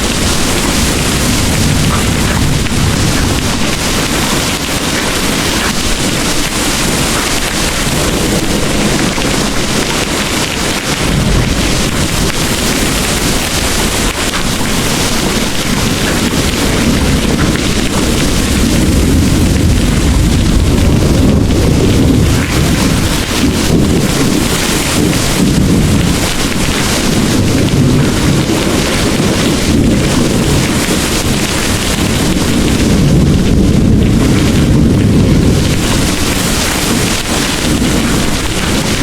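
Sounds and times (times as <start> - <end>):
heavy rain pouring: 0.0 - 39.0
rumble of thunder: 0.0 - 39.0.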